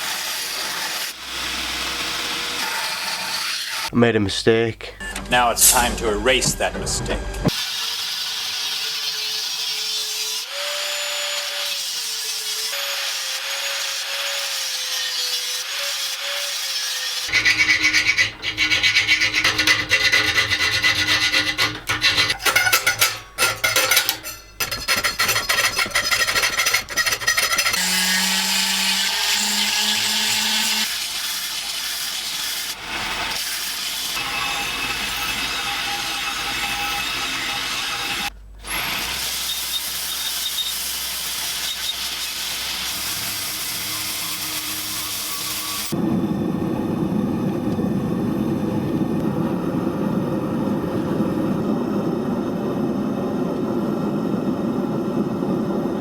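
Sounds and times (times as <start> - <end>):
grinding and filing metal: 8.6 - 31.8, 34.1 - 38.3, 39.1 - 46.0.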